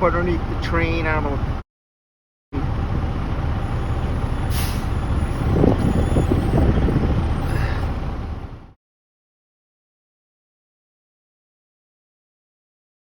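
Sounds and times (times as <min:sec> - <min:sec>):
heavy vehicle engine rumbling: 0:00.0 - 0:01.6, 0:02.6 - 0:08.8.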